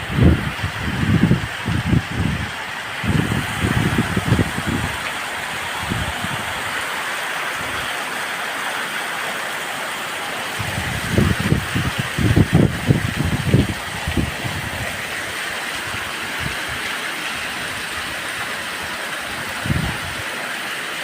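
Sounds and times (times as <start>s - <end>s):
wind buffeting microphone: 0.0s - 6.8s, 10.6s - 20.3s
heavy rain falling: 0.0s - 21.0s.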